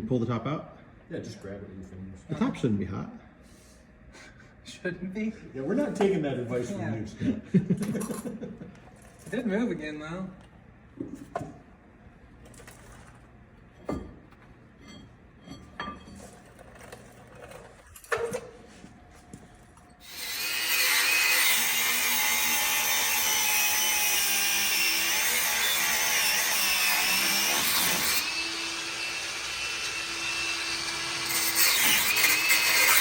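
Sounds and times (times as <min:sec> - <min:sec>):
power tool cutting metal: 0:20.0 - 0:33.0.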